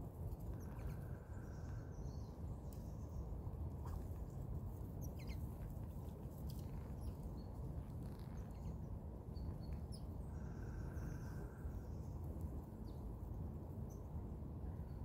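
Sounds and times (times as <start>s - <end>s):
low background rumble: 0.0s - 15.0s
small birds chirping: 0.4s - 4.4s, 5.0s - 12.2s.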